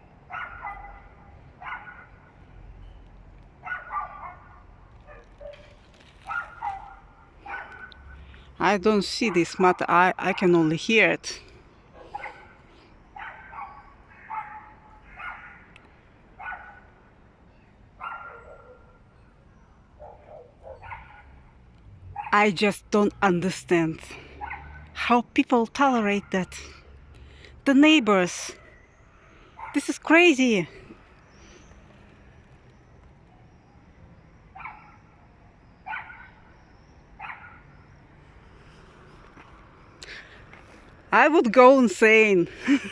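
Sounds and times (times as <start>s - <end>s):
dog barking: 0.3s - 2.2s, 3.6s - 8.0s, 12.0s - 12.6s, 13.2s - 15.7s, 16.4s - 16.9s, 18.0s - 19.0s, 20.0s - 21.3s, 24.4s - 24.8s, 34.6s - 35.0s, 35.9s - 36.4s, 37.2s - 37.6s.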